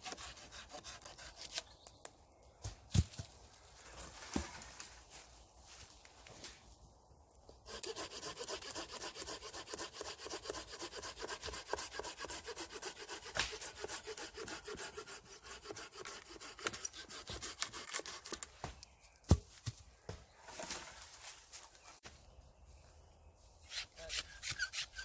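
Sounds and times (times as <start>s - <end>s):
hand saw cutting branch: 0.0s - 1.7s, 7.7s - 18.5s, 23.7s - 25.0s.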